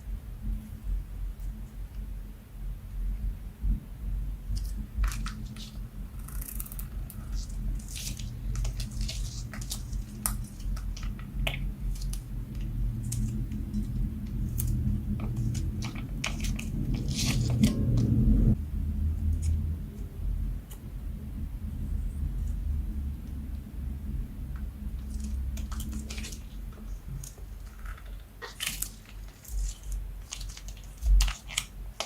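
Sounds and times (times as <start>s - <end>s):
low handling rumble: 6.8s - 31.3s.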